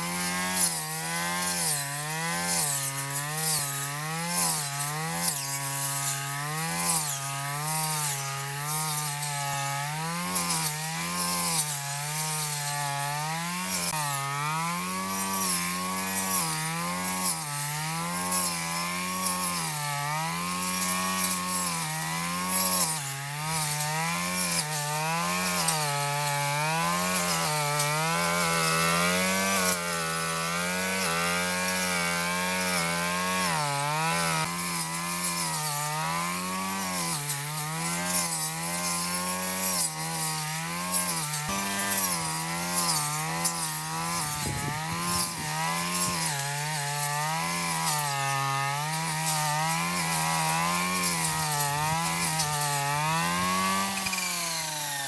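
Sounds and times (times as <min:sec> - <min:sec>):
lawn mower engine running: 0:41.0 - 0:55.0.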